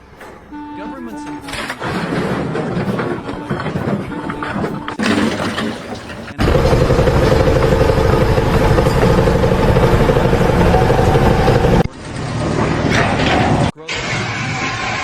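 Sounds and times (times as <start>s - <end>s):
loud engine running: 6.4s - 13.7s.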